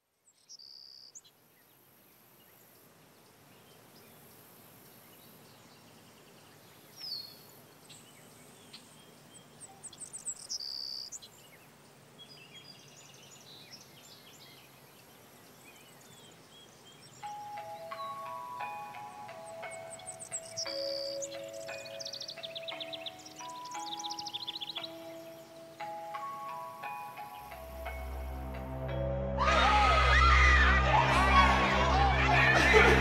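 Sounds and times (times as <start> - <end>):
faint steady hiss: 0.0 - 29.1
high bird-like chirps: 17.1 - 28.3
music cue: 17.2 - 33.0.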